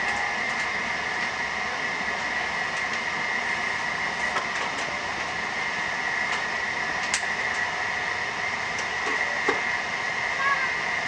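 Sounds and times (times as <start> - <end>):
high whine: 0.0 - 11.0
train running noise: 0.0 - 11.0.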